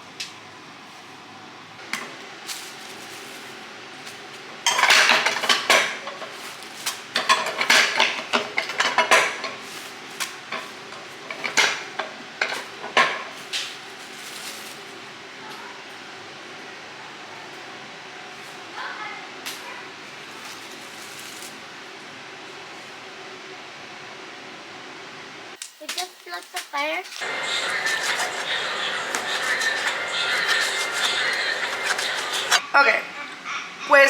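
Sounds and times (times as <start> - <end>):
pots and pans clattering: 4.6 - 6.5, 7.1 - 9.7, 10.5 - 13.4
background hum: 25.6 - 34.0.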